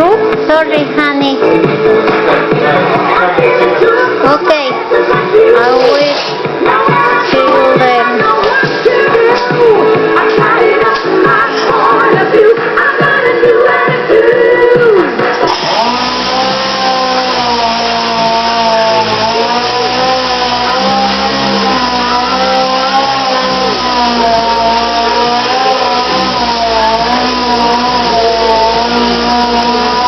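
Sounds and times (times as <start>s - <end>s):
power sander on metal: 15.4s - 30.0s.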